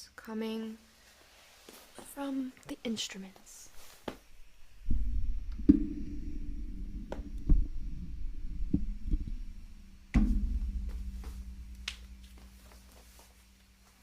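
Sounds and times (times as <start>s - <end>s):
deep ringing percussion strokes: 4.7s - 13.3s.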